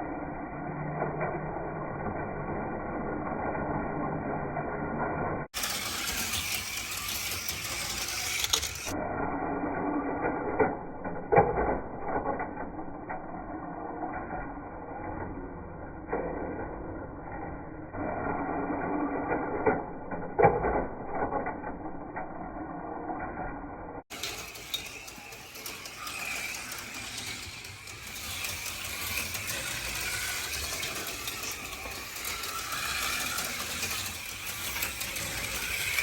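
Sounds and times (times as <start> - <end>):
small electric motors whirring: 5.6 - 9.0, 24.1 - 36.0.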